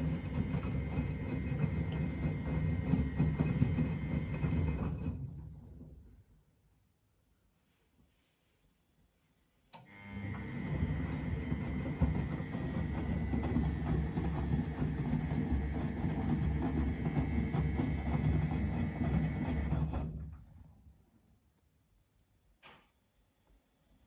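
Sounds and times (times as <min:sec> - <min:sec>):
washing machine drum turning: 0:00.0 - 0:05.2, 0:10.3 - 0:20.2.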